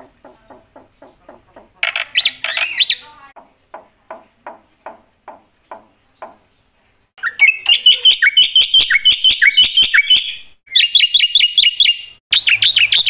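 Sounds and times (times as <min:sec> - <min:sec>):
bird singing sharp repeated notes: 0:01.8 - 0:03.2, 0:07.2 - 0:13.0.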